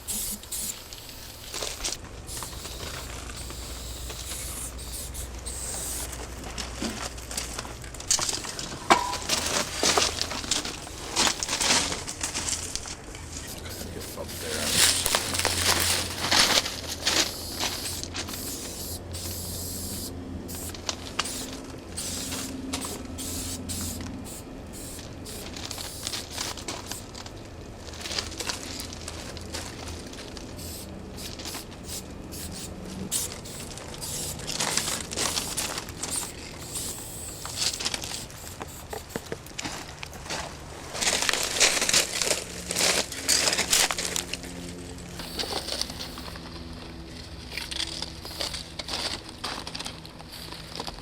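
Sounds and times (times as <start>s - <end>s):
spray paint cans hissing: 0.0s - 6.8s, 8.0s - 11.6s, 13.4s - 27.1s, 30.6s - 39.4s, 45.2s - 46.4s, 48.2s - 48.6s
low steady hum: 0.0s - 51.0s.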